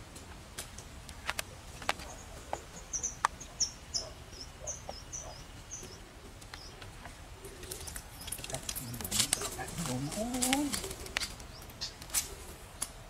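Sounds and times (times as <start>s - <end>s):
bird chirping rapidly: 2.1s - 6.0s.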